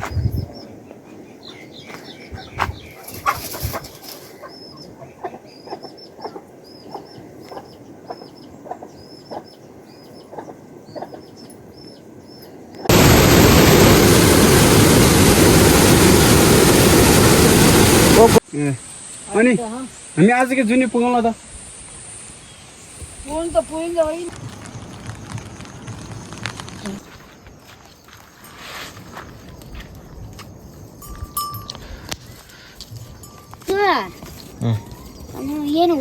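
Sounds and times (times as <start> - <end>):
chickens clucking: 2.3 - 9.6, 10.2 - 11.4
loud steady rushing noise: 12.9 - 18.4.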